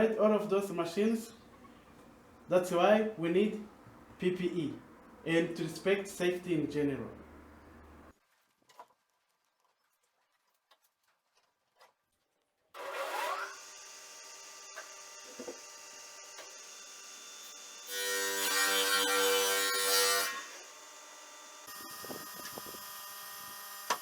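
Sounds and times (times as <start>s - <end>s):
machine cutting timber: 12.8s - 24.0s.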